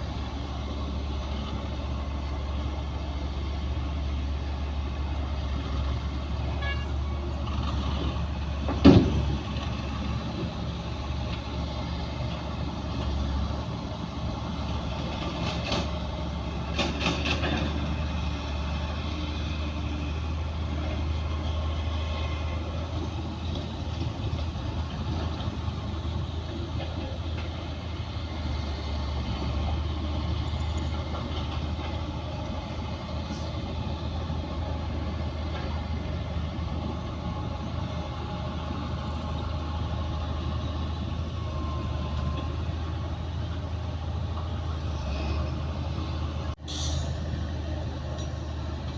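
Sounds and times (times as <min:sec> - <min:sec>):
bulldozer diesel engine droning: 0:00.0 - 0:48.9.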